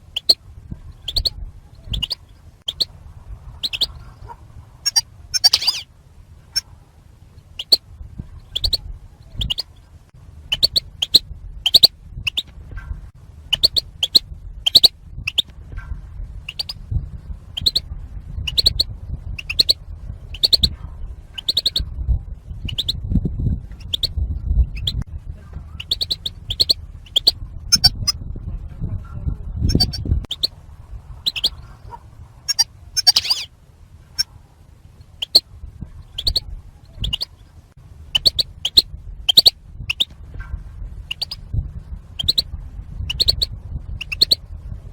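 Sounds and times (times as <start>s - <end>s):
goldfinch call notes: 0.0s - 2.9s, 3.5s - 5.9s, 13.5s - 15.5s, 25.8s - 28.2s, 31.2s - 33.5s, 38.1s - 40.2s
low rumble: 0.0s - 44.9s.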